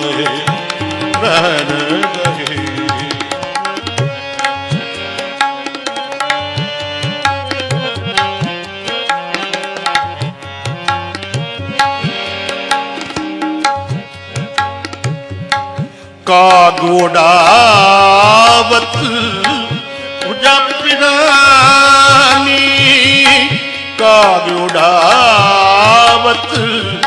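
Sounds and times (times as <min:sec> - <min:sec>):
person singing: 0:00.0 - 0:05.4, 0:16.2 - 0:27.0
harmonium melody: 0:00.0 - 0:27.0
tabla rhythm: 0:00.0 - 0:27.0.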